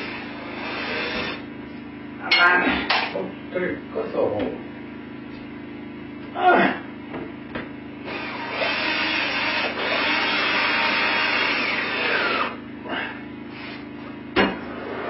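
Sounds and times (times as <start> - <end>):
power drill driving a screw: 0.0 - 1.4, 8.1 - 12.6.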